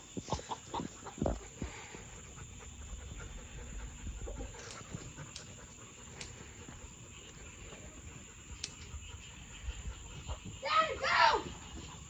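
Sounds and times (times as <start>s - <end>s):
dog panting: 0.1s - 10.6s
faint clicks: 4.6s - 6.4s.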